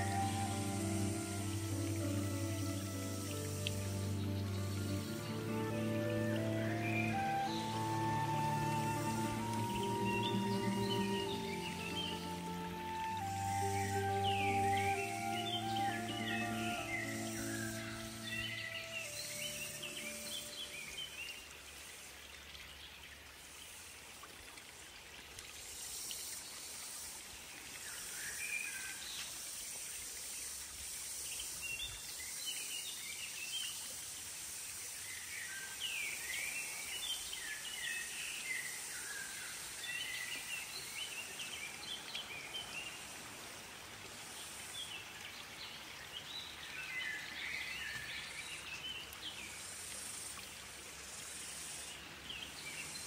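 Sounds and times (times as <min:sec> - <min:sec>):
birds chirping: 0:00.0 - 0:21.0
steady high hiss: 0:00.0 - 0:22.2, 0:25.5 - 0:53.0.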